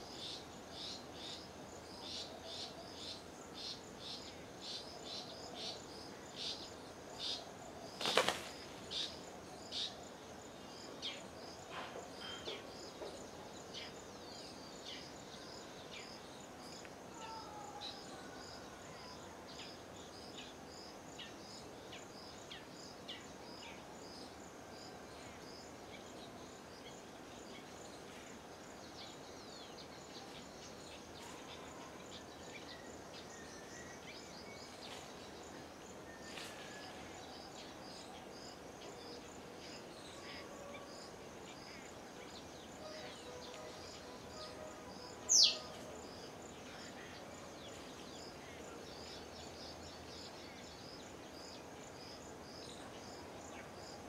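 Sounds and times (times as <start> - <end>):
steady outdoor hiss: 0.0 - 54.0
bird chirping: 25.2 - 54.0.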